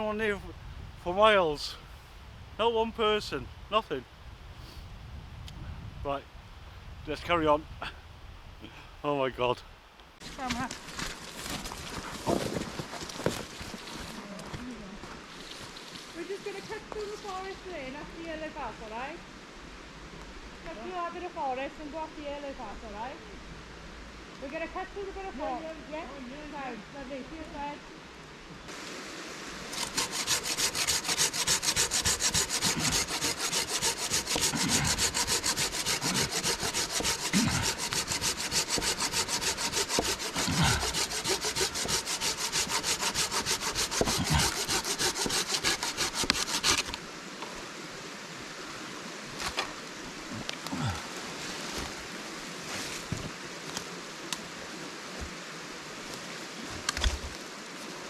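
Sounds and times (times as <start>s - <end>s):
steady hiss: 0.0s - 58.0s
rhythmic rasping strokes: 29.7s - 46.9s.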